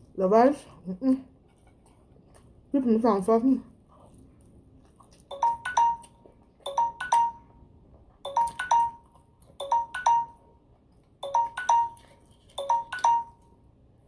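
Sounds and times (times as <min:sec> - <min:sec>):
electronic chime pings: 0:05.3 - 0:07.5, 0:08.3 - 0:10.5, 0:11.2 - 0:12.0, 0:12.6 - 0:13.5.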